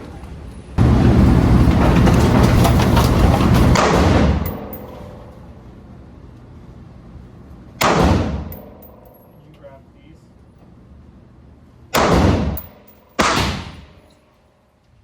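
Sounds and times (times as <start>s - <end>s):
gunshot echoing: 7.8s - 9.1s, 12.0s - 14.0s.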